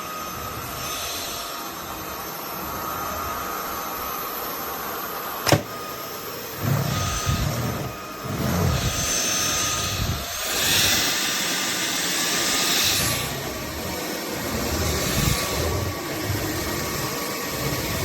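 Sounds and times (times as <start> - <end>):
stick vacuum motor whine: 0.0 - 18.0
sharp click: 5.4 - 5.8
rush of air: 6.6 - 11.5.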